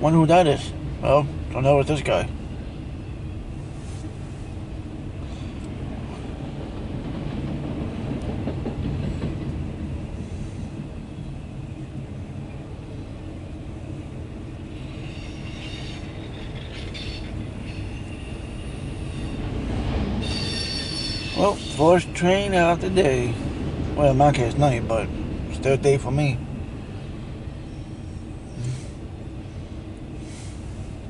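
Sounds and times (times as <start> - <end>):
freight cars rumbling past: 0.0 - 31.0
high wheel squeal: 14.7 - 19.4, 20.2 - 22.0.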